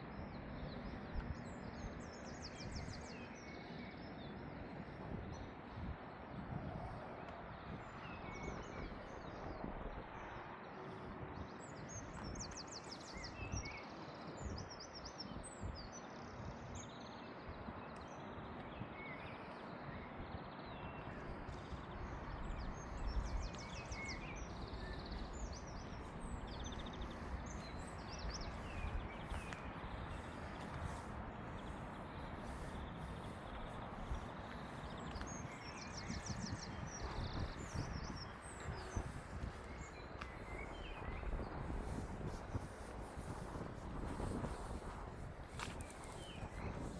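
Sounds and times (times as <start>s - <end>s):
small birds chirping: 10.9s - 46.9s
footsteps walking: 24.6s - 35.4s, 41.2s - 46.9s.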